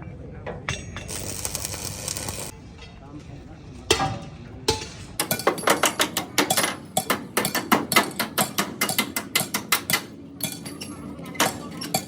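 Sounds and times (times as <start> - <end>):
hammer tapping on metal: 3.9 - 10.6.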